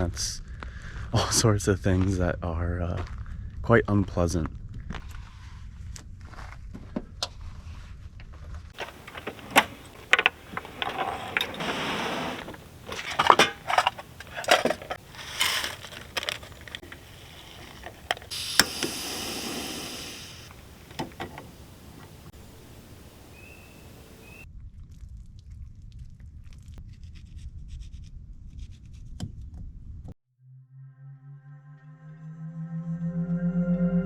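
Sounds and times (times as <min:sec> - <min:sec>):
objects clicking and clattering: 0:08.8 - 0:18.8
short rustles: 0:08.8 - 0:22.3
steady hiss: 0:08.8 - 0:24.4.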